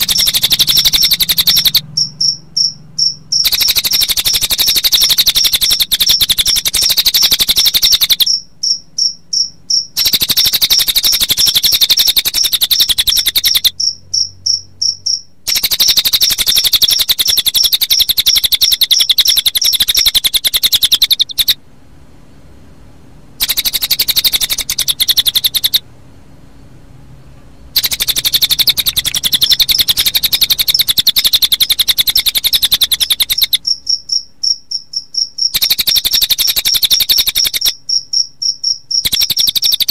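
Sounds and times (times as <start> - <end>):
bird song high trill: 0.0 - 21.6, 23.4 - 25.8, 27.8 - 34.2
crickets pulsing chirp: 0.0 - 21.6, 23.4 - 25.8, 27.6 - 39.9.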